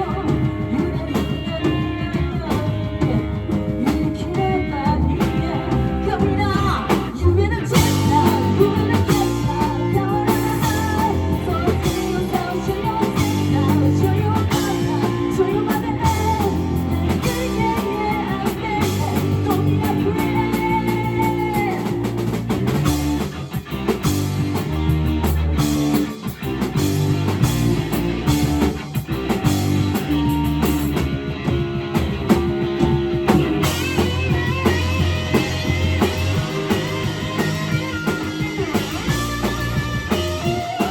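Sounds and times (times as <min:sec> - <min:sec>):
vocal or lead line: 0:00.0 - 0:22.8, 0:32.0 - 0:40.9
bass guitar: 0:00.0 - 0:40.9
drum kit: 0:00.0 - 0:40.9
electric guitar: 0:00.0 - 0:40.9.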